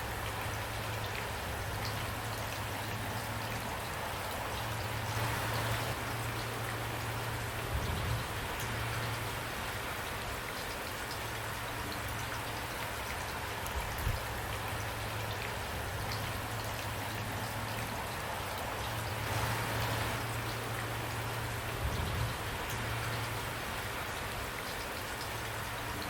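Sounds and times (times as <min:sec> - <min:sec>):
steady rain falling: 0:00.0 - 0:26.0
raindrops ticking: 0:08.5 - 0:26.0.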